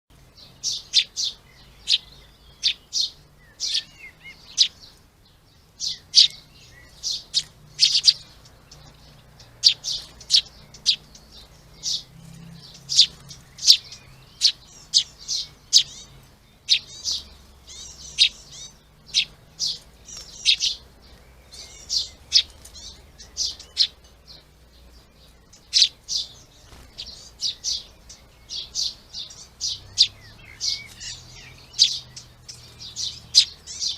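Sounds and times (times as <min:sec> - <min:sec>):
small birds chirping: 0:00.1 - 0:33.9.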